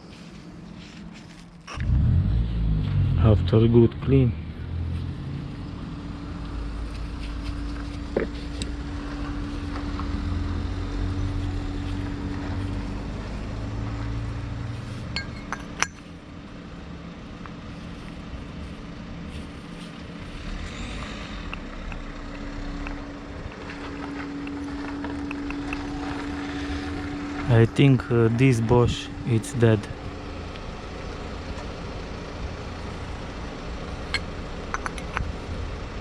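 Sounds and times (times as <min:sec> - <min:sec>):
low background hum: 0:00.0 - 0:36.0
light metal clinks: 0:15.2 - 0:16.0.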